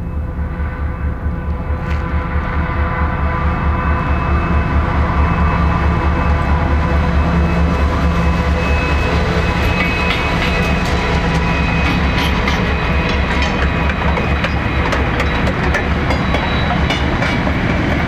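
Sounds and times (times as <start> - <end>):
diesel locomotive engine throb: 0.0 - 18.0
high steel squeal: 0.0 - 18.0
wheels clicking over rail joints: 11.8 - 18.0.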